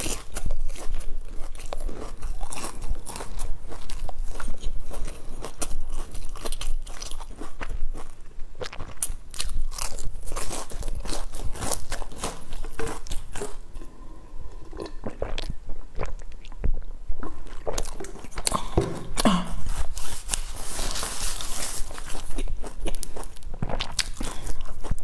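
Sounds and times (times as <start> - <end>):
crunching crisp pastry: 0.0 - 13.8, 19.6 - 25.0
person swallowing: 13.6 - 16.9, 18.0 - 19.7.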